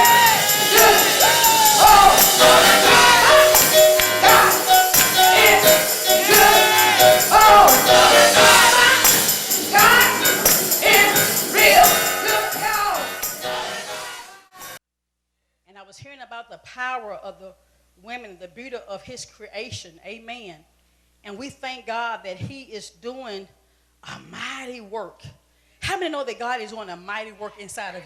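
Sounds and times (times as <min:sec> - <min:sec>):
tambourine jingling: 0:00.0 - 0:13.8
group gospel singing: 0:00.0 - 0:14.8.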